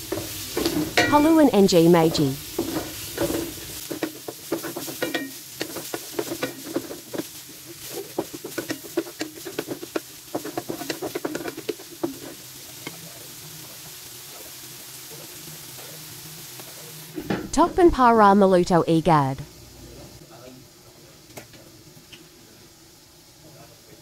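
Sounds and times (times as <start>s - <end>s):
spatula scraping and tapping wok: 0.0s - 1.3s, 2.1s - 17.3s
meat sizzling: 0.0s - 18.2s.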